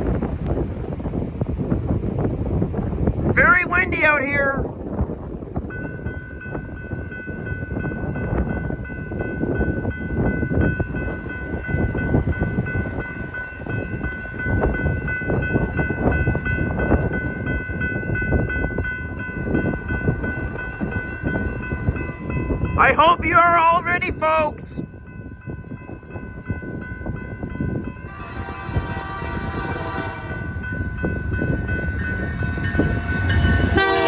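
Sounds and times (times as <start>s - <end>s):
train rumbling and clattering: 0.0s - 34.0s
wind on microphone: 0.0s - 34.0s.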